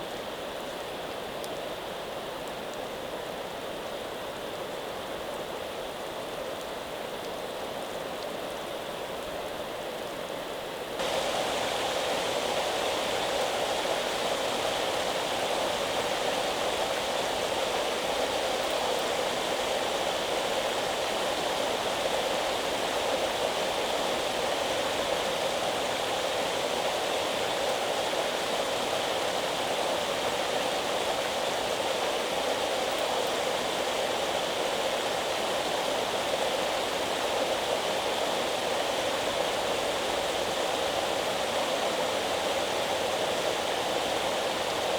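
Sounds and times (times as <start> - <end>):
water rushing: 11.0 - 17.2.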